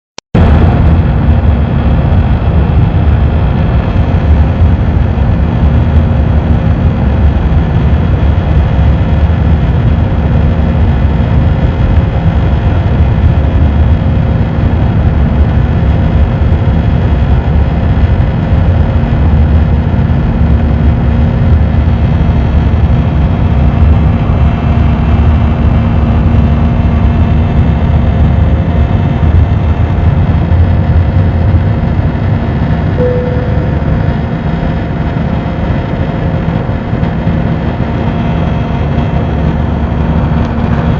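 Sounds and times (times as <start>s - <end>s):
jet engine and airflow rumble: 0.3s - 40.9s
constant tonal hum: 0.4s - 40.9s.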